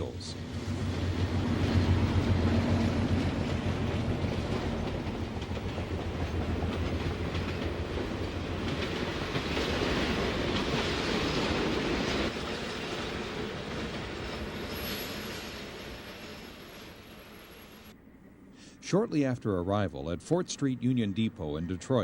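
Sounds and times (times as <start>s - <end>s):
diesel train engine hum: 0.0s - 22.0s
wheels clicking over rail joints: 0.8s - 14.8s.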